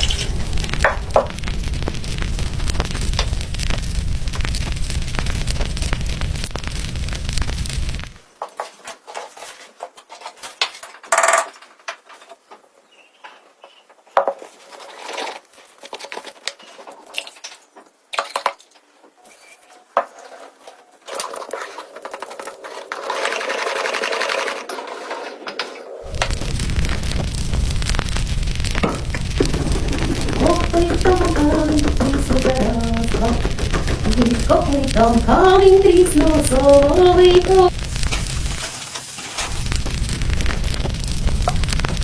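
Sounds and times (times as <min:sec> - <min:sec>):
steady hiss: 0:00.0 - 0:08.4, 0:25.4 - 0:42.0.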